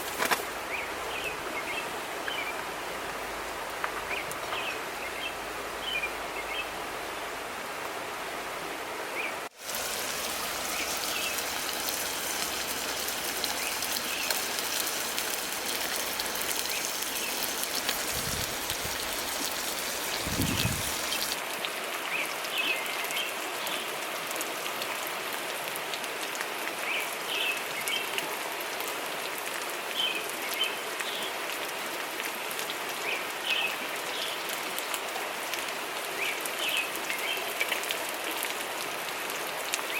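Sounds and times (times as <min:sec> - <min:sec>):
small birds chirping: 0:10.3 - 0:18.1.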